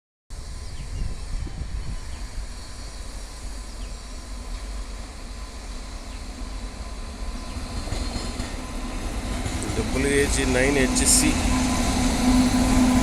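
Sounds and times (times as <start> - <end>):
locomotive rumbling: 1.2 - 13.0.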